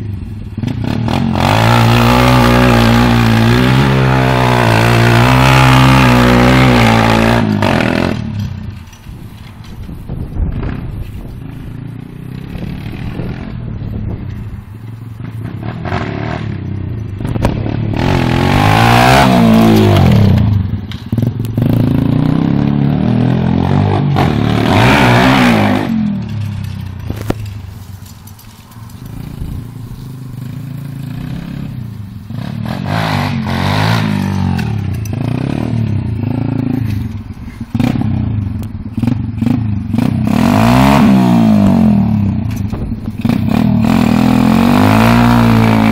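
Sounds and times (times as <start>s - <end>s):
pit bike engine revving: 0.0s - 8.9s, 10.4s - 13.9s, 15.2s - 27.6s, 29.0s - 45.9s.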